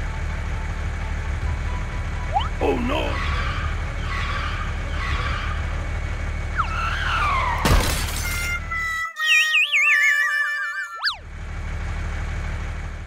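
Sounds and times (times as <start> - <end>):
cartoon engine rumble: 1.3 - 7.8
loud cartoon crash: 7.4 - 8.6
falling whistle: 8.7 - 11.2.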